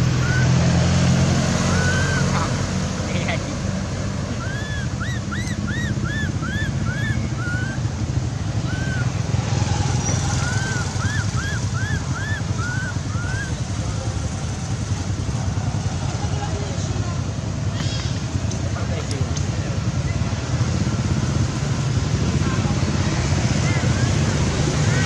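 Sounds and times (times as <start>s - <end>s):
low rumble like traffic: 0.0s - 25.0s
small animal chirping: 4.3s - 9.1s, 10.0s - 13.7s.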